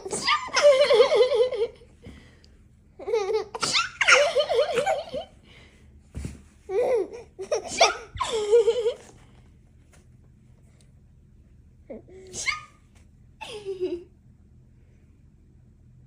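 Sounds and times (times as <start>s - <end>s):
baby laughing: 0.0s - 1.8s, 3.0s - 5.3s, 6.7s - 9.1s.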